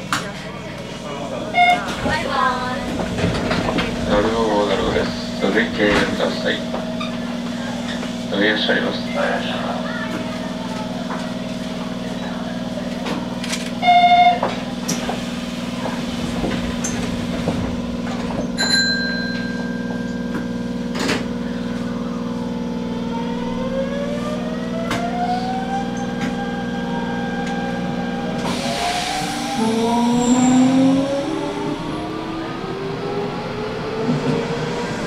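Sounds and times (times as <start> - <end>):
train equipment humming: 0.7 - 35.0
traction motors whining: 20.0 - 35.0.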